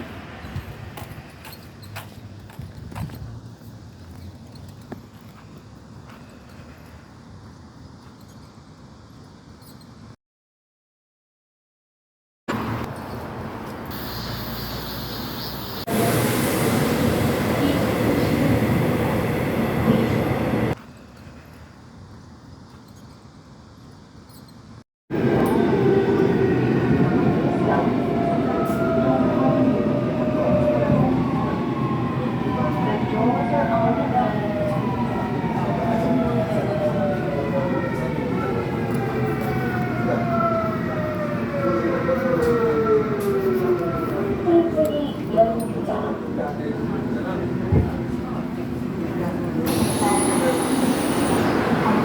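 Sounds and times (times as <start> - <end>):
subway train rumbling: 0.0 - 5.2, 12.5 - 20.8, 25.1 - 52.0
train motors whining: 49.6 - 52.0.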